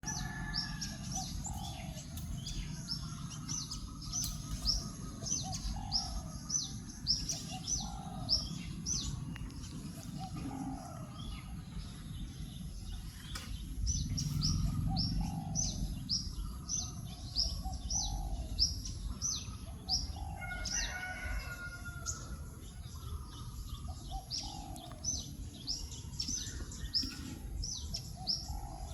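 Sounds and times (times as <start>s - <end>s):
small songbirds chirping: 0.0s - 28.9s
steady low rumble: 0.1s - 20.4s.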